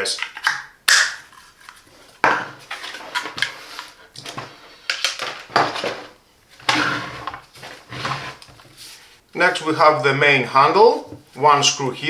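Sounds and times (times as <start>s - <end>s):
plastic parts clicking and rattling: 0.0s - 1.9s, 2.6s - 6.8s.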